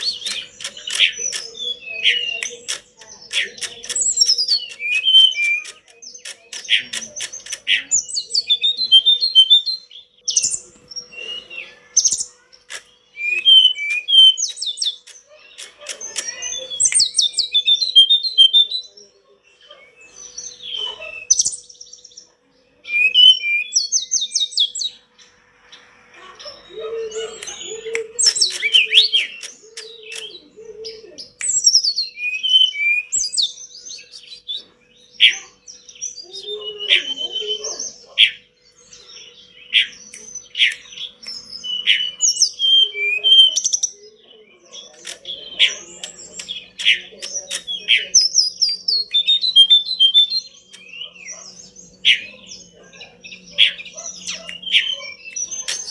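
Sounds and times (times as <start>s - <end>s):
bird singing whistled trills: 3.3s - 12.3s, 13.0s - 18.9s, 22.8s - 25.0s, 26.5s - 38.4s, 39.4s - 44.0s, 46.4s - 55.9s.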